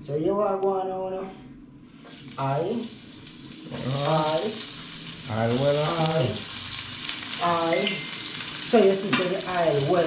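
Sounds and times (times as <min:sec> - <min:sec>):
vegetables sizzling in oil: 0:02.1 - 0:10.0.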